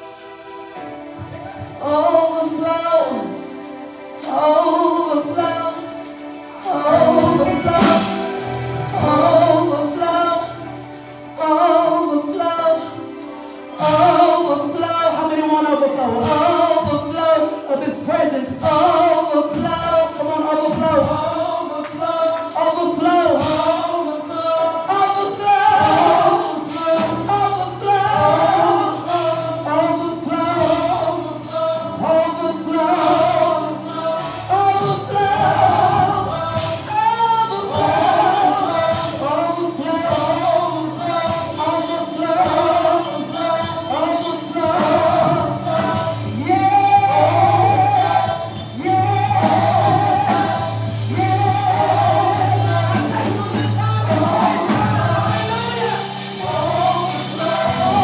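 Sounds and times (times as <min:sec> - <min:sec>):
choir singing gospel: 0:00.0 - 0:58.0
drum beat: 0:24.9 - 0:58.0
bass line: 0:25.4 - 0:58.0.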